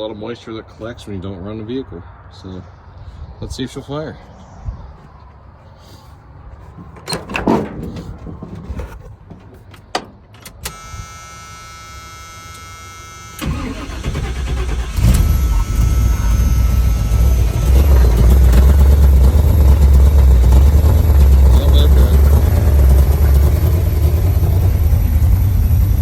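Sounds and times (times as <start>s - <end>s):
engine cranking and rumbling: 6.5s - 10.9s, 13.4s - 26.0s
steady electric whine: 10.6s - 14.1s, 15.0s - 20.3s.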